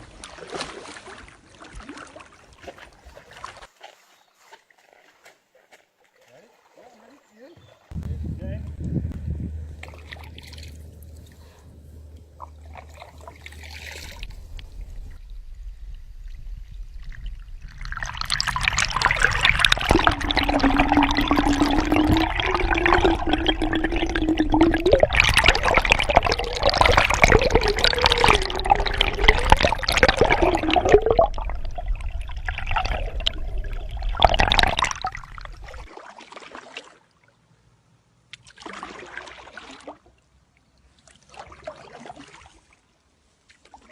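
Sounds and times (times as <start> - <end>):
rising tone of filling vessel: 8.8 - 35.9
water pouring into a container: 16.9 - 35.9.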